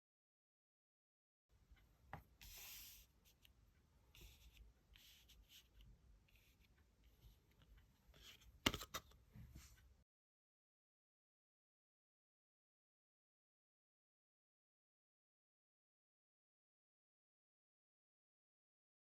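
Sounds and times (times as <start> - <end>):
cards sliding over a surface: 2.4 - 3.4, 8.1 - 9.8.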